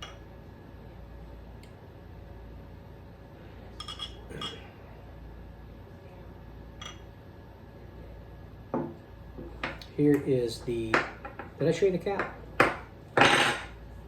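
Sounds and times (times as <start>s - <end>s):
glass clinking: 3.8s - 4.6s.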